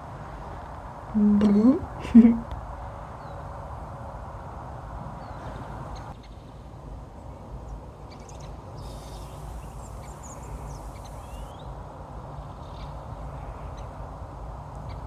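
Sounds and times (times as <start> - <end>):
small birds chirping: 5.2 - 6.6, 8.1 - 11.8.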